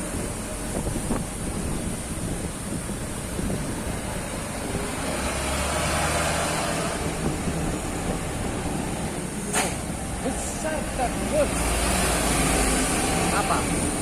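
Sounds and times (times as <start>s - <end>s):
truck engine running: 0.0s - 5.4s
tyre noise on wet road: 0.0s - 14.0s.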